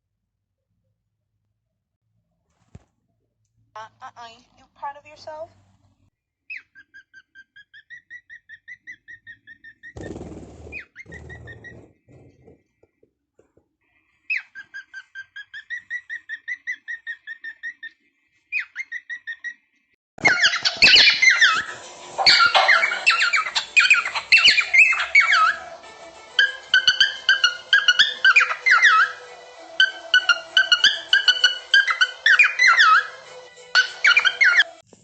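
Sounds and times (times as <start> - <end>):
parrot squawking and chattering: 6.5 - 12.7, 14.2 - 25.8, 26.4 - 34.8
parrot whistling: 20.2 - 25.7, 26.4 - 33.2, 33.8 - 34.8.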